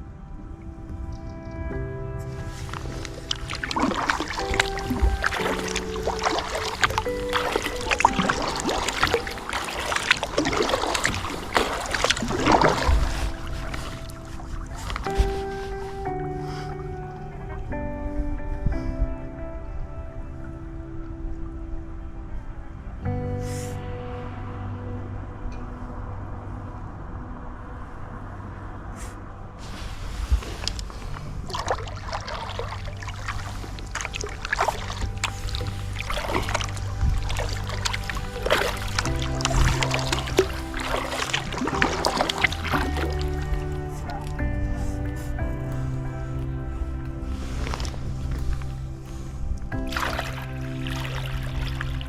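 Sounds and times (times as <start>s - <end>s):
steady low rumble: 0.0s - 52.0s
kayak paddle splashing in water: 2.4s - 15.9s, 29.6s - 52.0s.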